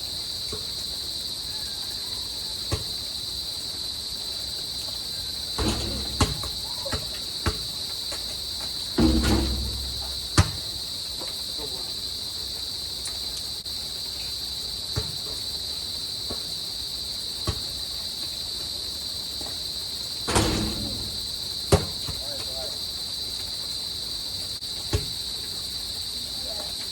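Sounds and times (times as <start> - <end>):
crickets chirring: 0.0 - 26.9
sharp knocks: 5.6 - 6.6, 9.0 - 10.6, 20.3 - 22.0.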